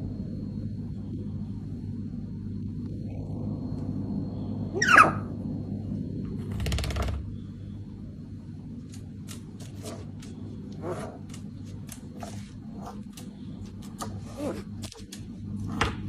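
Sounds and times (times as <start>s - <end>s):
low room hum: 0.0s - 16.0s
parrot squawk: 4.8s - 5.3s.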